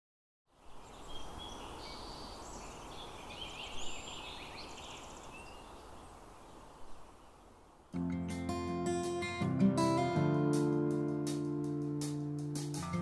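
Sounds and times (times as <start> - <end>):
birds chirping and trilling: 0.5 - 8.0
outdoor background hiss: 0.5 - 13.0.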